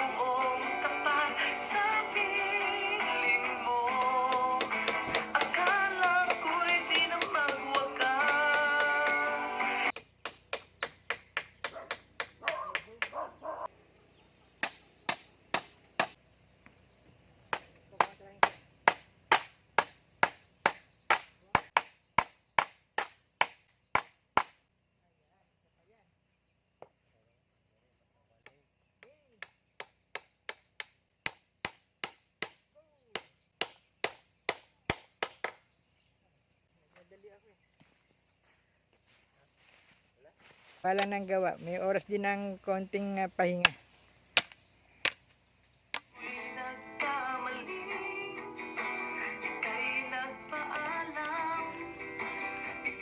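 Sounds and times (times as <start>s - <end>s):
sharp knocks on wood: 4.6s - 6.4s, 10.0s - 13.2s, 17.5s - 24.6s.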